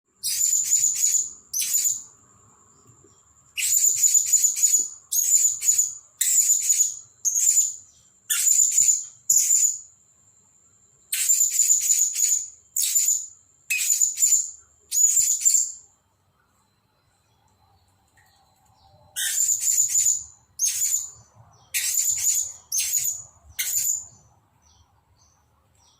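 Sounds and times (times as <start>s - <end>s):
parrot shrill chirping calls: 0.2s - 2.1s, 3.6s - 9.8s, 11.2s - 15.8s, 19.2s - 24.1s.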